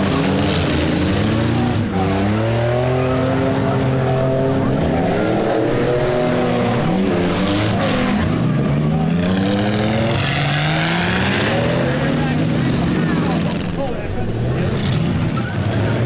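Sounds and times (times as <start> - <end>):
car engines revving hard: 0.0 - 16.0.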